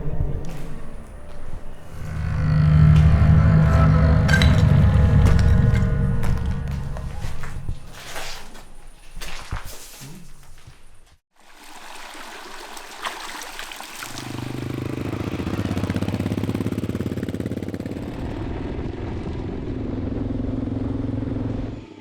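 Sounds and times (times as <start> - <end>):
motorcycle engine running: 14.3 - 21.9.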